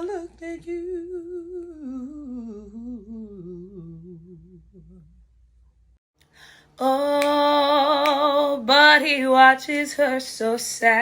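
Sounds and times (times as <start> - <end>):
faint electrical hum: 5.2 - 11.0.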